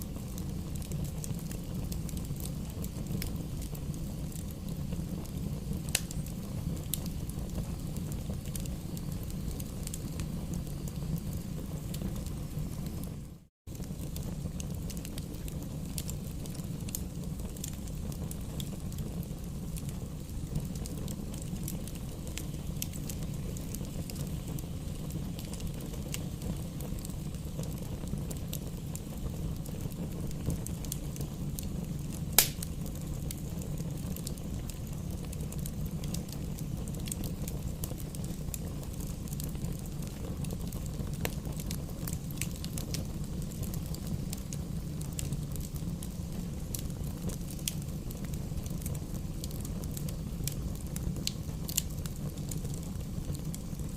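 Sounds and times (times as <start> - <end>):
firewood crackling: 0.0 - 53.9
low rumble of flames: 0.0 - 53.9
loud pop of firewood: 32.4 - 32.7.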